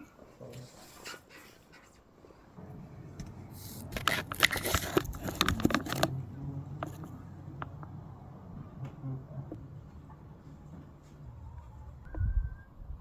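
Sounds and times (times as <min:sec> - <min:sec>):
scraping and clicking: 0:03.2 - 0:06.2, 0:06.8 - 0:08.0.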